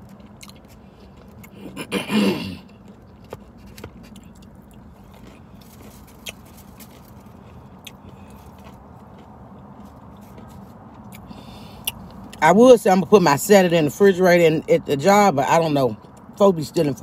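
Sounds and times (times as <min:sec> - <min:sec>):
faint chewing and clicks: 0:00.0 - 0:01.7, 0:02.6 - 0:12.4
car interior hum: 0:00.0 - 0:17.0.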